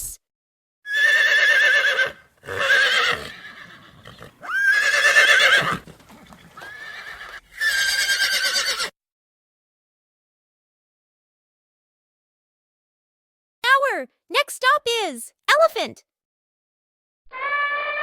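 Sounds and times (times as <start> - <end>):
horse whinnying: 0.9 - 8.9, 17.3 - 18.0.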